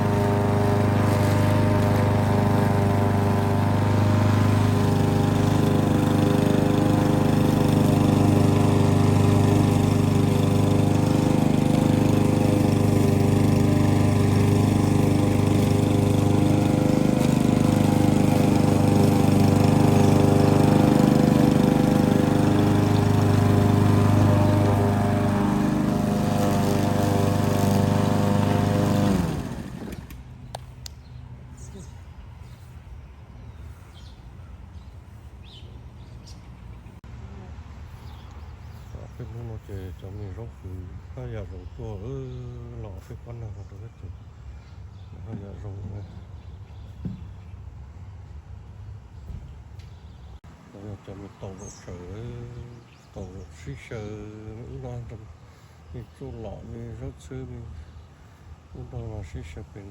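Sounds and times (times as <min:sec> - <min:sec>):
lawn mower engine running: 0:00.0 - 0:33.0.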